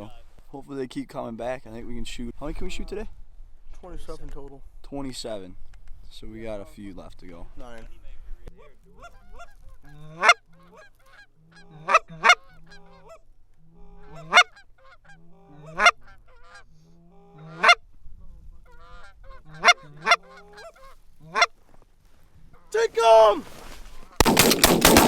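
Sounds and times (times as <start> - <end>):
goose clucks and murmurs: 8.5 - 21.6
goose honking: 8.9 - 17.8, 18.6 - 21.6.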